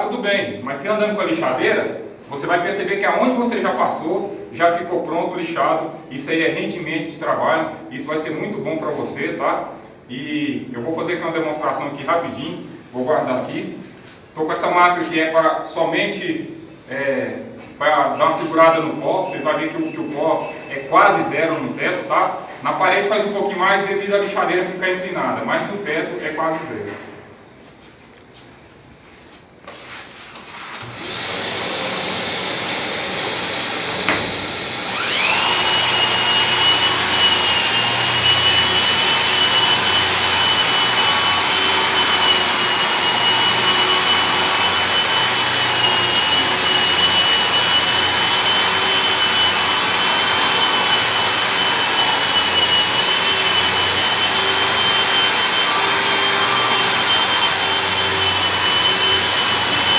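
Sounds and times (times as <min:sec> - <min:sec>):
dust extractor motor whine: 0:30.8 - 0:59.9
sander motor running: 0:30.8 - 0:59.9.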